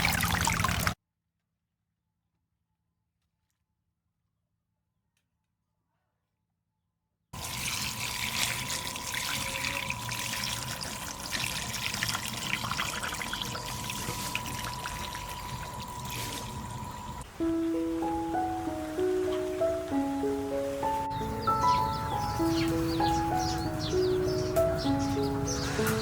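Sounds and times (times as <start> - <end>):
water pouring: 0.0 - 1.0, 7.4 - 17.3.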